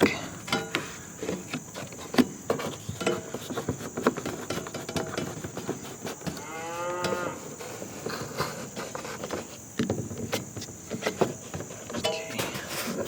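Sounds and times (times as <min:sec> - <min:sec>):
cow mooing: 0:06.4 - 0:07.4.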